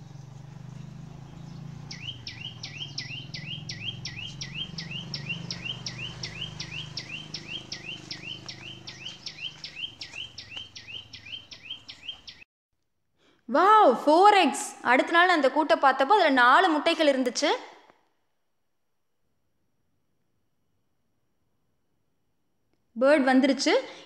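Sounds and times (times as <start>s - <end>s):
songbird short sharp chirps: 0.8s - 12.4s.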